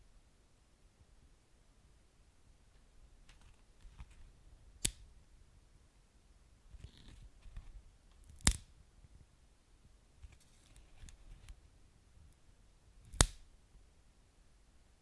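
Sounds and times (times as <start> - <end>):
wood fire crackling: 13.0 - 13.4.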